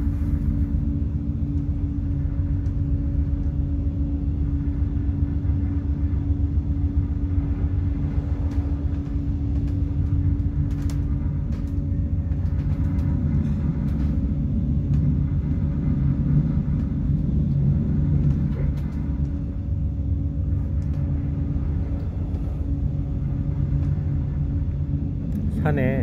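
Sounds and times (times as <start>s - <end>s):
steady hum: 0.0s - 26.0s
train rumble inside carriage: 0.0s - 26.0s.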